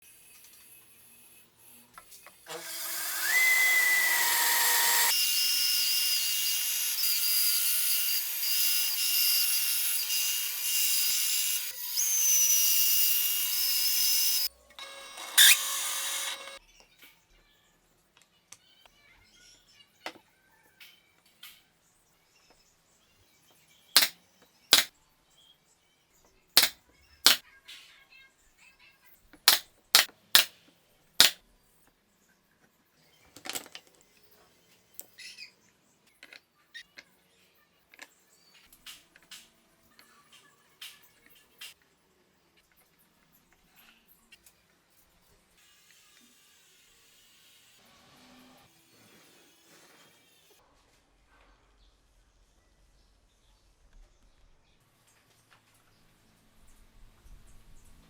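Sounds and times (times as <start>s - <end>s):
power drill whining: 2.4s - 16.6s.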